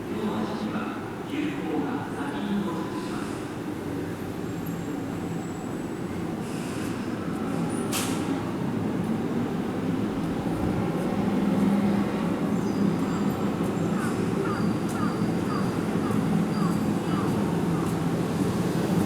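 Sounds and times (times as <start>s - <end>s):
electric train rumbling: 8.2s - 19.0s.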